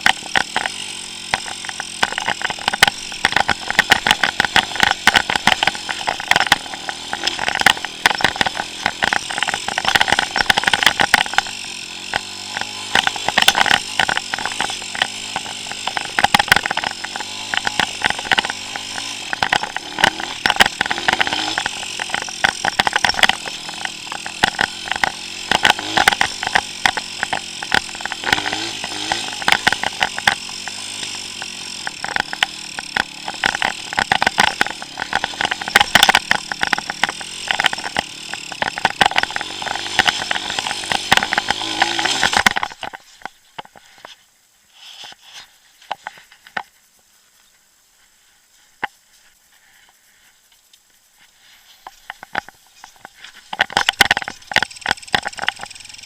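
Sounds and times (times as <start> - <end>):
clatter of knocks and rattles: 0.0 - 44.1, 51.8 - 56.0
motorcycle engine revving: 0.0 - 46.8, 51.1 - 56.0.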